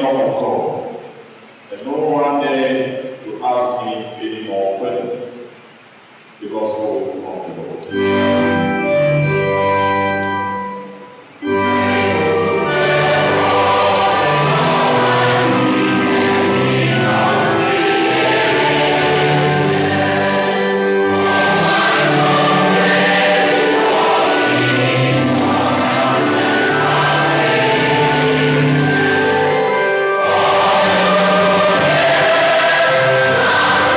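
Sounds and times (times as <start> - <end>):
church choir singing a hymn: 6.7 - 10.2, 11.4 - 33.9
instrumental accompaniment: 7.8 - 33.9.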